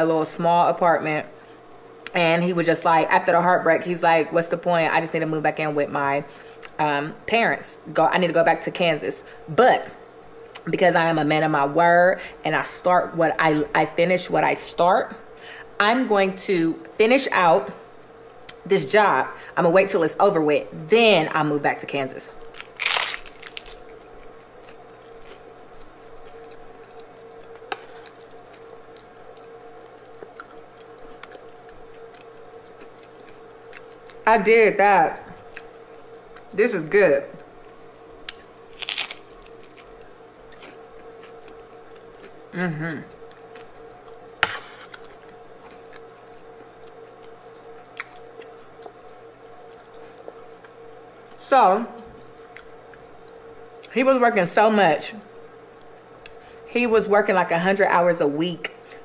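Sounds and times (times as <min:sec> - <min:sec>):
faint steady hum: 0:00.0 - 0:59.0
person chewing: 0:22.4 - 0:34.2, 0:35.4 - 0:36.6, 0:37.6 - 0:51.4.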